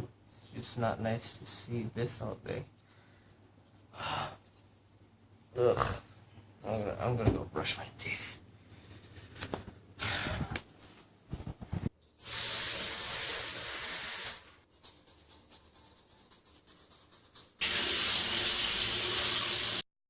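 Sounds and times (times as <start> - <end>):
teeth being brushed: 14.7 - 17.6.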